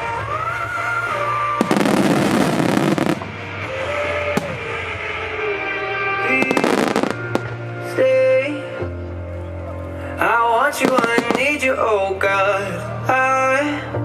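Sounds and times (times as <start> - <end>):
loud pop music: 0.0 - 9.1, 10.2 - 14.0
sharp firework report: 1.6 - 3.4, 6.4 - 7.6, 10.8 - 11.6
fireworks crackling burst: 1.6 - 5.2, 6.3 - 7.6, 10.8 - 11.7.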